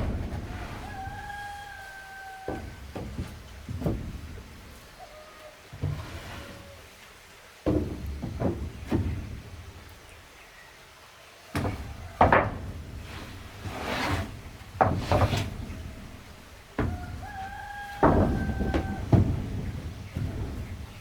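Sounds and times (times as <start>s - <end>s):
wooden boards knocking: 0.0s - 4.7s, 7.6s - 10.0s, 11.5s - 21.0s
wood scraping on wood: 0.0s - 5.0s, 5.8s - 7.0s, 11.6s - 21.0s.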